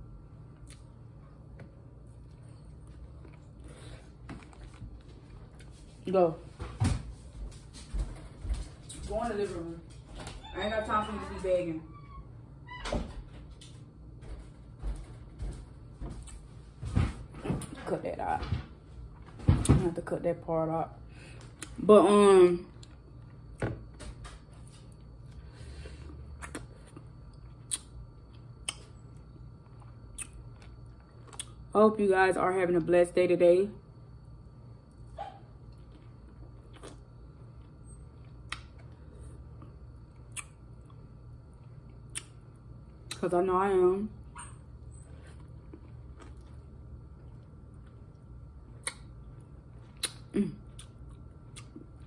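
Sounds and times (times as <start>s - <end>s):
low room hum: 0.0s - 52.0s
person chewing corn: 0.5s - 5.8s, 24.9s - 31.7s, 35.6s - 43.2s, 45.0s - 52.0s
wet mouth clicks and smacks: 27.6s - 27.9s, 42.1s - 42.4s, 48.8s - 49.1s, 50.0s - 50.2s.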